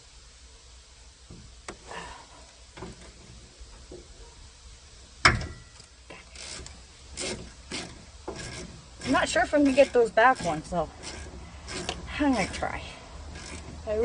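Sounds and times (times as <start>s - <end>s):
hand tools clicking and scraping: 5.3s - 14.0s.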